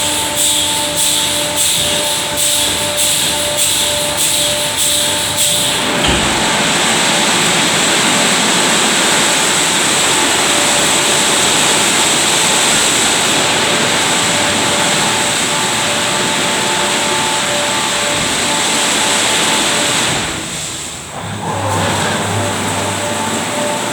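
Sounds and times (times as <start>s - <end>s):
car wash rushing noise: 0.0s - 23.9s.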